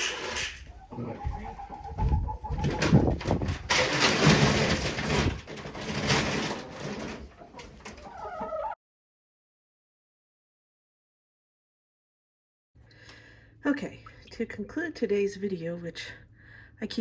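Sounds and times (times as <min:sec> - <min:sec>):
chickens clucking: 0:00.0 - 0:08.8.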